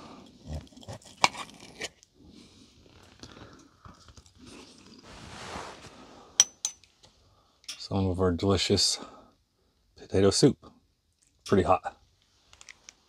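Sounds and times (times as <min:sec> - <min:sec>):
person chewing: 0:03.0 - 0:05.0.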